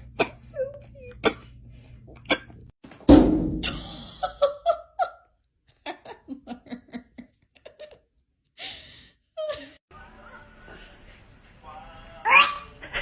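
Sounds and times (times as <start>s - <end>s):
loud thump: 3.1s - 4.0s
person laughing in bursts: 3.6s - 5.2s.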